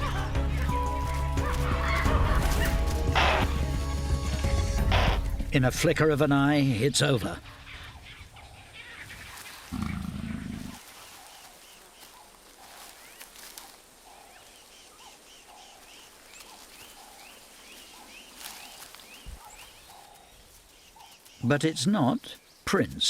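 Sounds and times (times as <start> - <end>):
leopard growling: 9.6 - 10.8.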